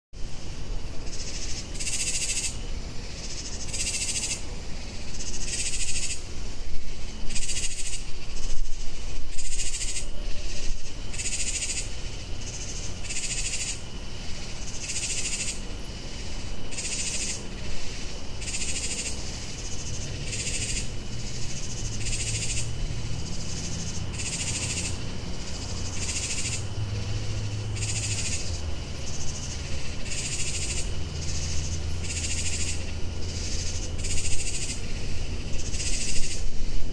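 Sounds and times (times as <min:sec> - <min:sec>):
raspy animal calls: 0:18.4 - 0:36.5.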